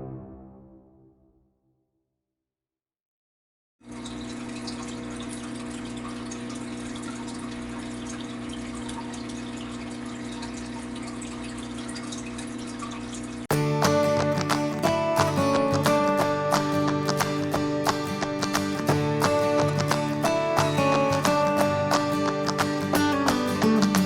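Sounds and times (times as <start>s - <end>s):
filter pump humming: 3.8s - 13.5s
splashing water: 3.9s - 24.0s.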